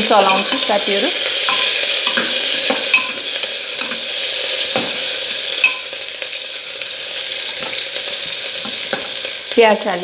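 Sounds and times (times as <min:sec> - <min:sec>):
spoon scraping pan: 0:00.0 - 0:05.9
onion sizzling in oil: 0:00.0 - 0:10.0.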